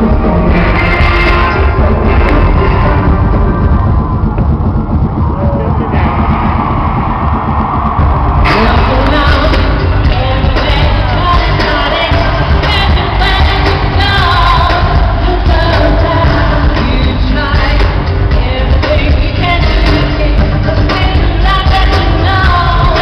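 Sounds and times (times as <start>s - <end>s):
loud bass-heavy band: 0.0s - 23.0s
woman singing lead vocal: 8.4s - 23.0s.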